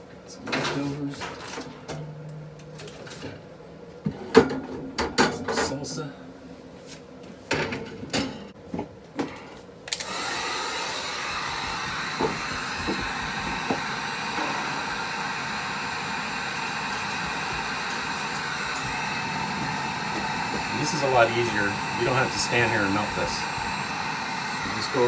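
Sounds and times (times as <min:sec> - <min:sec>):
hot-air blower running: 0:09.9 - 0:25.0.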